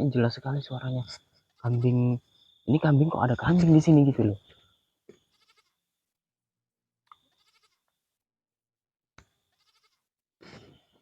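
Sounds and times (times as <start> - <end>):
faint bleating calls: 1.0 - 2.1, 5.3 - 5.8, 7.4 - 7.9, 9.6 - 10.1.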